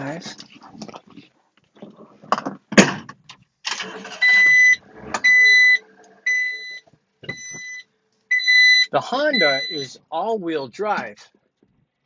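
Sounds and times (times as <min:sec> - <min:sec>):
electronic warning buzzer beeping: 0:04.2 - 0:10.0.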